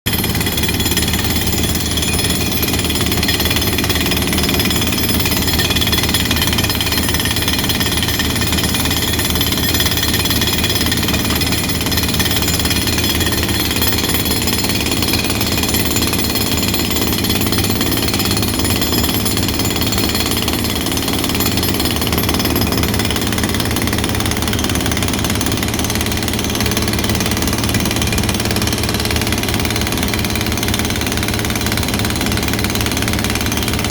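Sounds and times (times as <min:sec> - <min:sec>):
hydraulic breaker hammering: 0:00.1 - 0:33.9.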